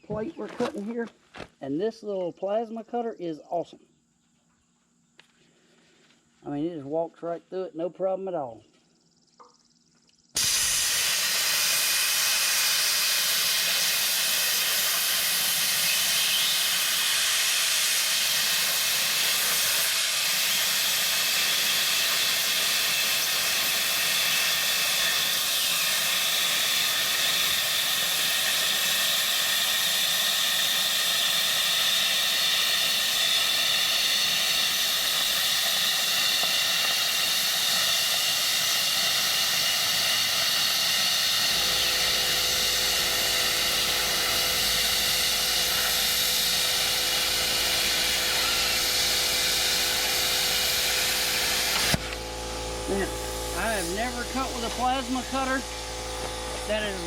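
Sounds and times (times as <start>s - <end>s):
plasma cutter hissing: 10.4s - 57.0s.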